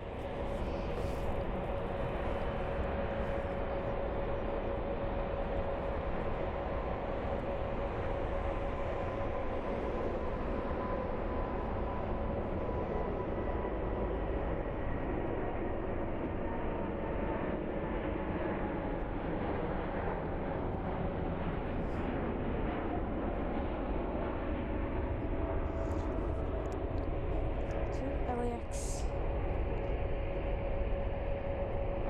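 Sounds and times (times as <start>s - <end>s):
jet engine whine: 0.0s - 32.0s
jet engines rumbling: 0.0s - 32.0s.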